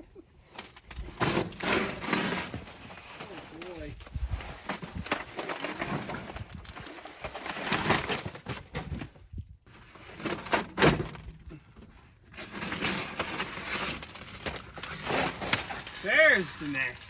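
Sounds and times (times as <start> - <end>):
brittle material crunching: 12.4 - 17.0.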